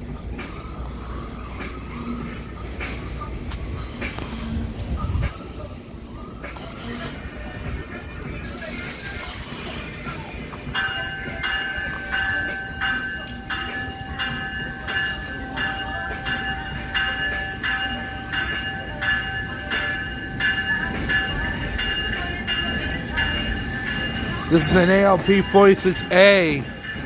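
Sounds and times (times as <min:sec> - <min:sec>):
train whine and rumble: 0:00.0 - 0:27.0
locomotive bell ringing: 0:10.1 - 0:27.0.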